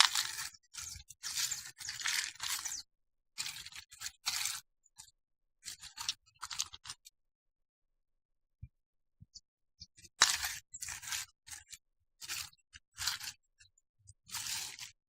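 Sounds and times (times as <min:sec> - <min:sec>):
metal parts scraping and rustling: 0:00.0 - 0:02.8, 0:10.2 - 0:13.4.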